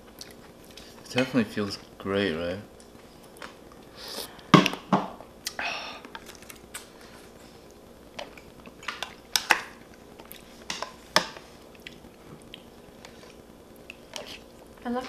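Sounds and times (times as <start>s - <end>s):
chewing and wet mouth sounds: 0.0s - 2.0s, 5.4s - 14.6s.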